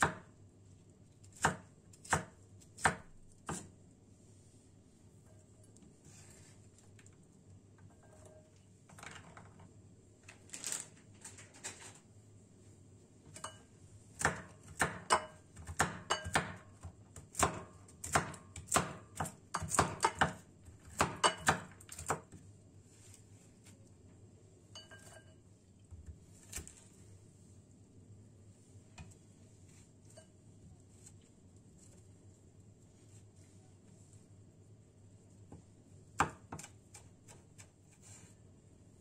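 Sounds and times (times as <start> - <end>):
dishes and utensils clinking: 13.3 - 13.7, 24.7 - 25.5.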